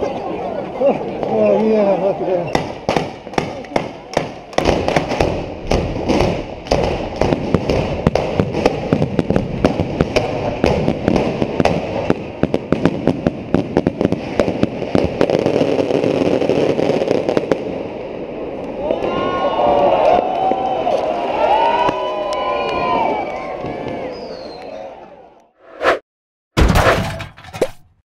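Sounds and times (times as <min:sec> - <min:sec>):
firecrackers cracking and banging: 0:02.5 - 0:17.7.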